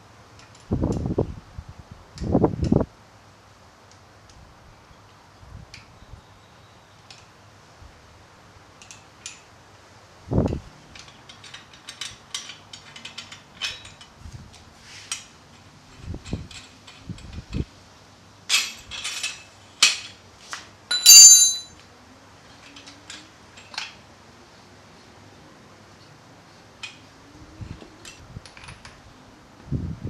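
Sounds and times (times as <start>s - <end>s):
metal tools clicking and clinking: 10.4s - 14.1s, 18.5s - 20.2s, 20.9s - 21.8s
ringing metal clink: 20.9s - 21.8s.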